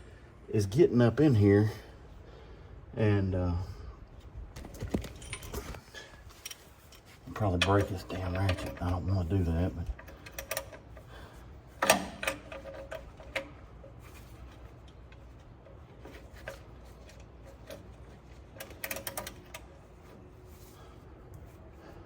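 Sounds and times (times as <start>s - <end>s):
hand ratchet clicking: 10.0s - 11.1s, 18.5s - 19.7s.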